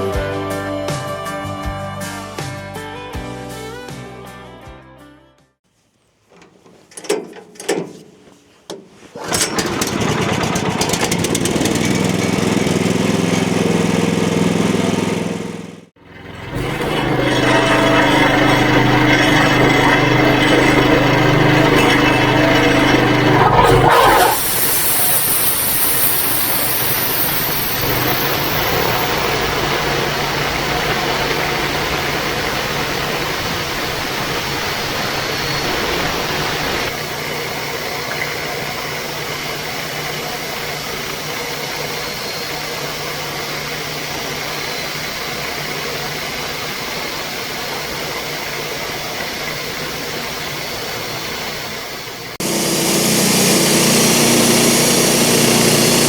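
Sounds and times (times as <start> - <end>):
sawmill engine running: 6.4 - 56.0
saw blade turning: 16.6 - 32.8, 52.4 - 56.0.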